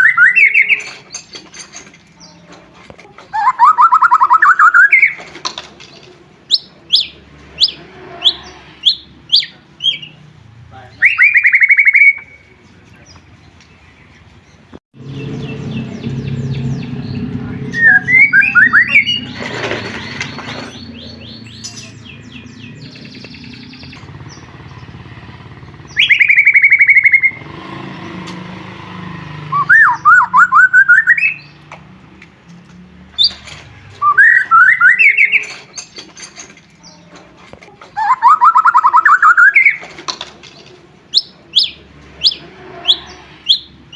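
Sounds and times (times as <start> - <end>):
bird singing whistled trills: 0.0 - 1.3, 3.4 - 5.2, 10.9 - 12.6, 15.1 - 27.4, 29.5 - 31.6, 34.0 - 36.0, 38.0 - 39.8, 41.1 - 43.8
bird chirps: 0.0 - 2.6, 3.3 - 31.7, 33.2 - 37.2, 37.9 - 43.9.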